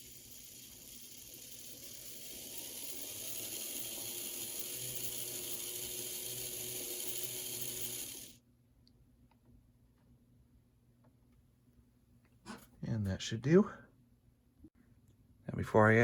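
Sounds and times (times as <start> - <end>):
model locomotive motor and gears: 0.0 - 8.4.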